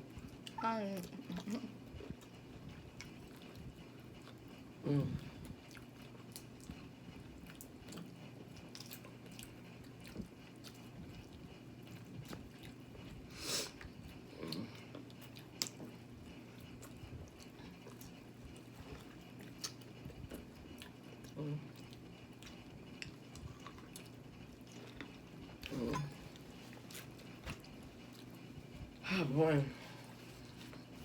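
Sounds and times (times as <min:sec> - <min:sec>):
person chewing seafood: 0:02.0 - 0:29.0.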